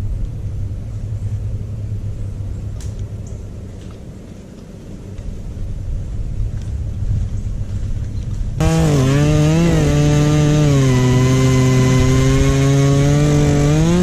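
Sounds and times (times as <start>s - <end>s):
chainsaw cutting wood: 8.6s - 14.0s.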